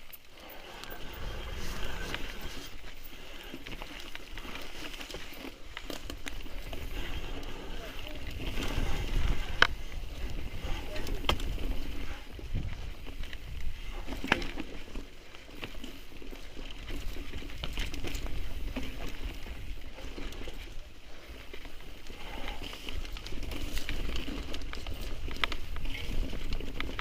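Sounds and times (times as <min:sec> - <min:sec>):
bike clacking: 0:00.0 - 0:27.0
bike tyres rumbling on dirt: 0:00.0 - 0:27.0
wind on microphone: 0:06.7 - 0:14.6.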